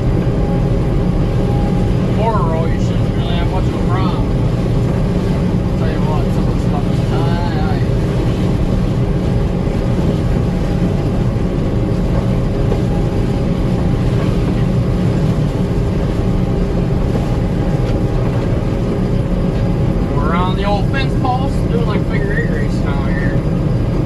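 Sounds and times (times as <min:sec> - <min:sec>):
combine harvester engine drone: 0:00.0 - 0:24.0.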